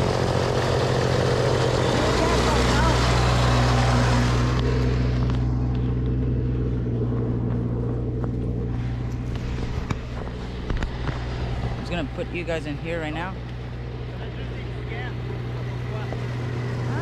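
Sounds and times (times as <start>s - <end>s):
snowblower engine running: 0.0s - 17.0s.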